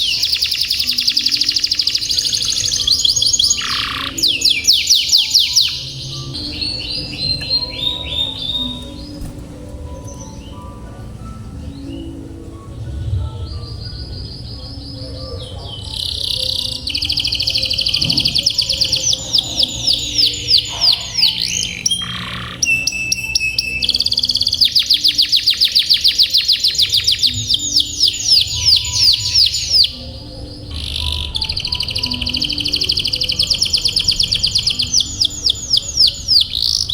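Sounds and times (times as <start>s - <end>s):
canary singing trills: 0.0s - 36.9s.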